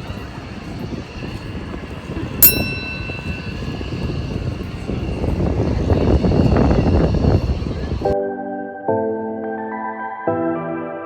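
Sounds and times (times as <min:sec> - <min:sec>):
low outdoor rumble: 0:00.0 - 0:08.2
sharp metallic ding: 0:02.4 - 0:04.1.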